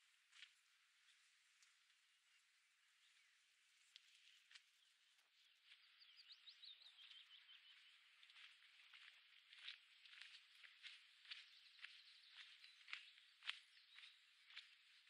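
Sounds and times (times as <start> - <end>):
soft footsteps on a path: 0.0 - 15.0
faint bird chirps: 1.0 - 15.0.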